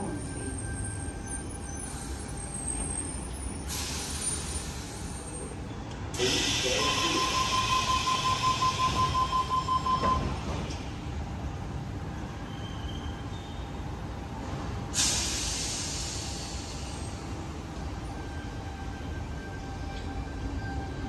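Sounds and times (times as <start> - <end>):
electric train rumbling: 0.0 - 21.0
air hissing: 6.2 - 7.8, 15.0 - 17.1.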